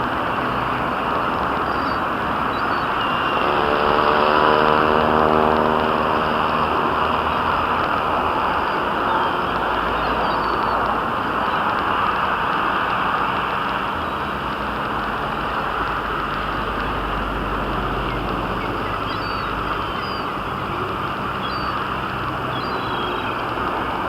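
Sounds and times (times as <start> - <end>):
city background hiss and rumble: 0.0 - 24.0
high bird calls: 1.5 - 4.2, 8.5 - 11.7, 18.1 - 23.6.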